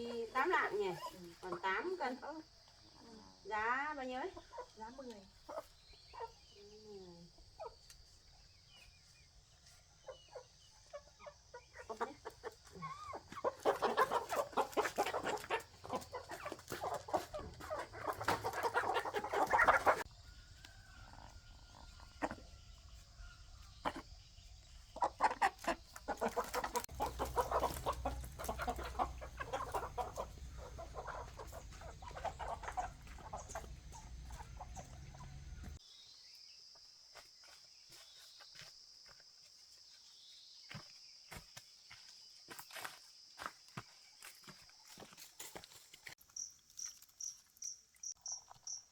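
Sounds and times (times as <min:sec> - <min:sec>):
chickens clucking and squawking: 0:00.0 - 0:02.3, 0:02.9 - 0:35.8.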